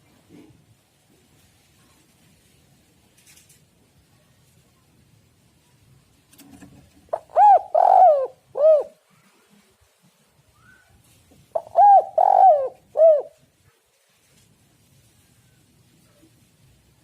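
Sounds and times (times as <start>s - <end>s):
dove cooing: 7.1s - 9.0s, 11.5s - 13.4s.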